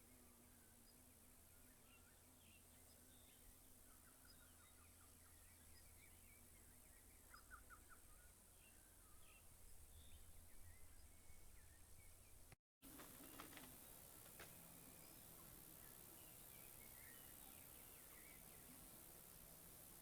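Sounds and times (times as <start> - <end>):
birds chirping: 12.9 - 20.0.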